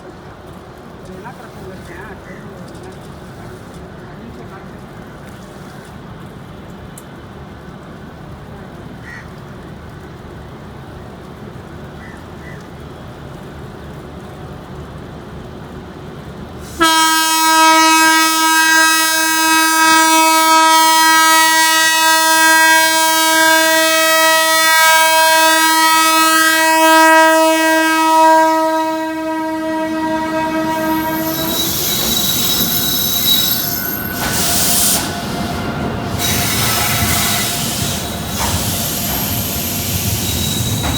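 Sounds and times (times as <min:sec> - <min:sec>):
train running noise: 0:00.0 - 0:40.9
locomotive horn blast: 0:16.8 - 0:40.9
high wheel squeal: 0:30.6 - 0:40.9.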